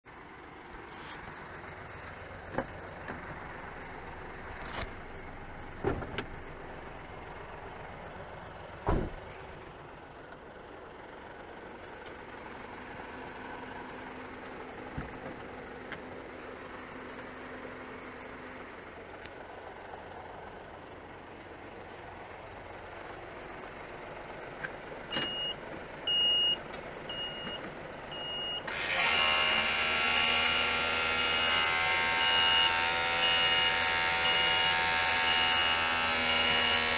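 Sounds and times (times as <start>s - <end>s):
diesel truck idling: 0.1s - 36.9s
electric motor whine: 28.6s - 36.9s
high beeper: 30.2s - 36.8s.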